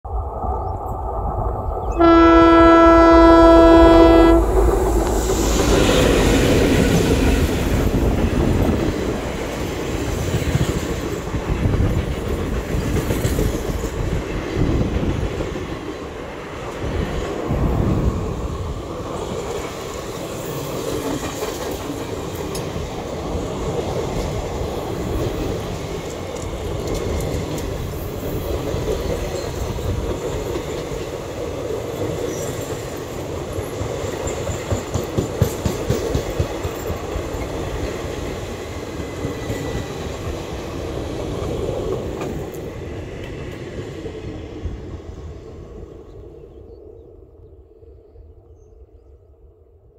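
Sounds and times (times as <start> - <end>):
diesel locomotive engines working: 0.1 - 46.5
loud locomotive horn blast: 1.9 - 5.1
train wheels rumbling and clacking: 3.4 - 45.1.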